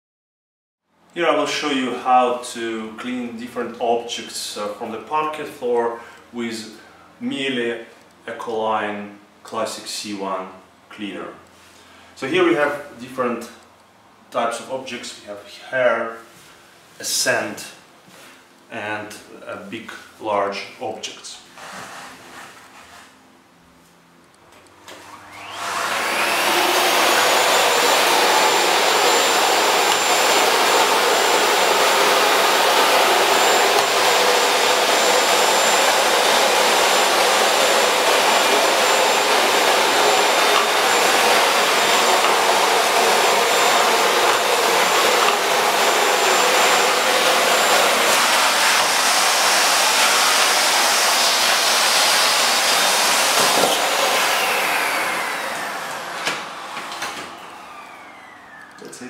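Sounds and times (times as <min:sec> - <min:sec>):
vacuum cleaner running: 0:21.5 - 0:22.9, 0:24.6 - 0:59.0.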